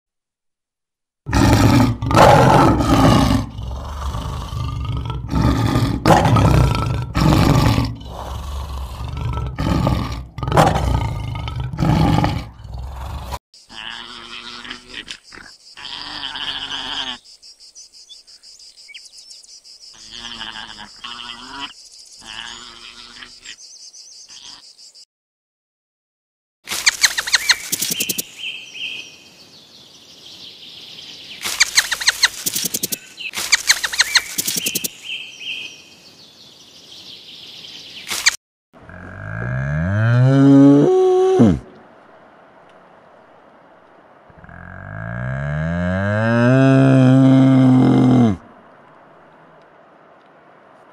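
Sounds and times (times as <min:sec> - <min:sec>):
lion roaring: 0:01.3 - 0:15.0, 0:38.8 - 0:41.8, 0:44.3 - 0:48.5
quick clicks: 0:26.7 - 0:28.2, 0:31.4 - 0:34.9, 0:38.1 - 0:38.4
short pitched calls: 0:26.7 - 0:28.2, 0:31.4 - 0:34.9.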